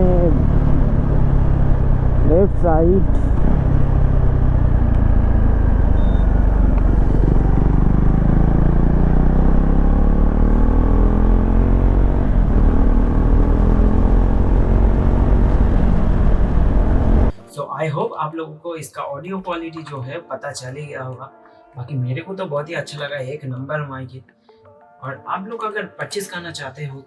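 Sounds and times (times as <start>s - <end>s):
wind rumble: 0.0s - 9.8s, 12.0s - 17.3s
motorcycle engine accelerating: 0.0s - 17.3s.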